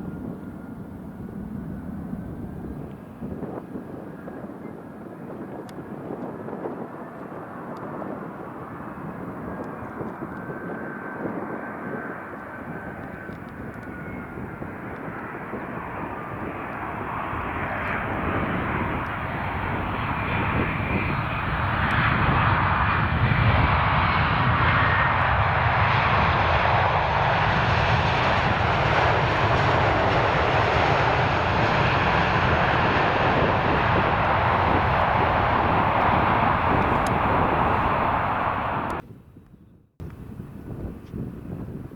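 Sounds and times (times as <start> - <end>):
jet engines roaring: 0.0 - 39.0.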